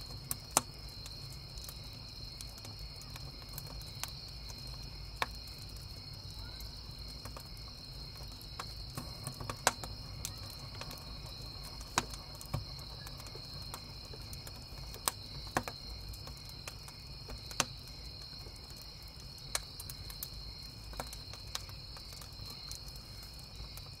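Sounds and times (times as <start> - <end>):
campfire crackling and popping: 0.0 - 24.0
crickets chirping: 0.0 - 24.0.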